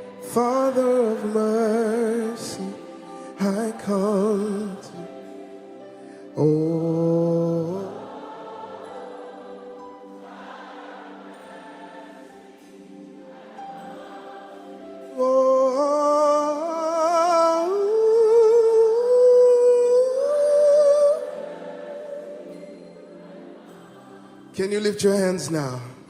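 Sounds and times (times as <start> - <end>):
solo voice singing with vibrato: 0.0 - 5.7, 14.5 - 23.1
soft sung chorus: 0.0 - 26.0.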